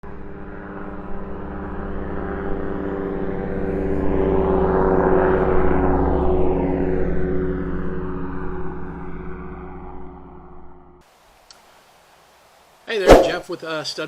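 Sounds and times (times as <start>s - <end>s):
propeller airplane flying past: 0.0s - 11.0s.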